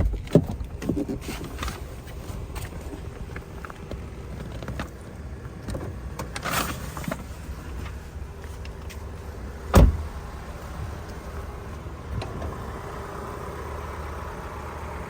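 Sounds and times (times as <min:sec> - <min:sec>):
car engine idling: 0:00.0 - 0:15.0
loud sharp thump: 0:09.8 - 0:10.2.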